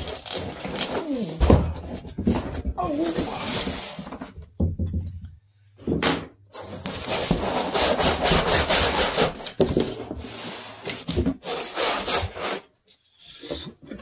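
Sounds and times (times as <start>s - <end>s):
cardboard rubbing and scraping: 0.0s - 4.3s, 6.6s - 12.7s.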